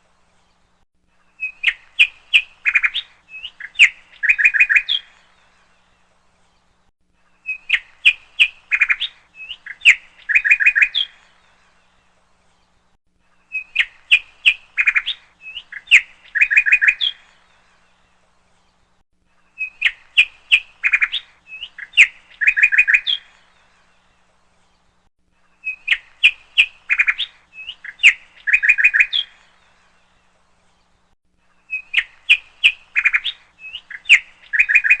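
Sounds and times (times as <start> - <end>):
bird chirping and trilling: 1.4 - 5.6, 7.4 - 11.6, 13.4 - 18.0, 19.5 - 24.0, 25.6 - 30.2, 31.6 - 35.0.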